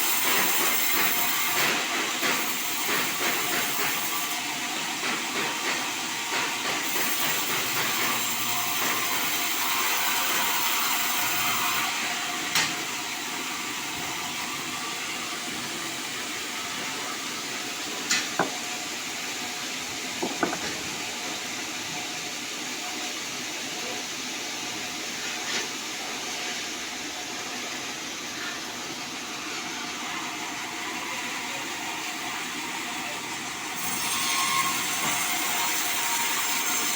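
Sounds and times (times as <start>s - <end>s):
band saw running: 0.0s - 22.0s, 29.4s - 36.9s
short sharp knocks: 20.2s - 20.8s.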